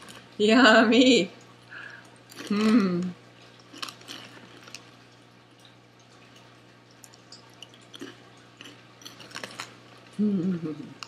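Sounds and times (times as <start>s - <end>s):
snack bag crinkling: 2.2s - 2.8s, 3.6s - 5.0s, 7.8s - 10.2s
crunching snacks: 2.3s - 2.8s, 3.5s - 5.0s, 7.1s - 10.2s.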